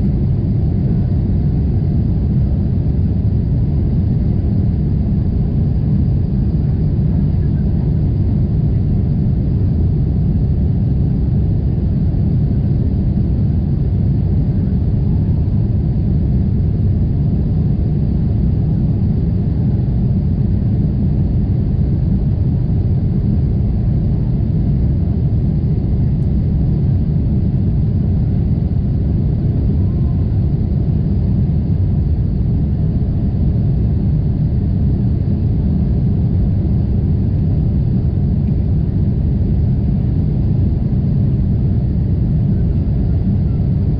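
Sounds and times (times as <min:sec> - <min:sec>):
airliner cabin rumble: 0:00.0 - 0:43.9.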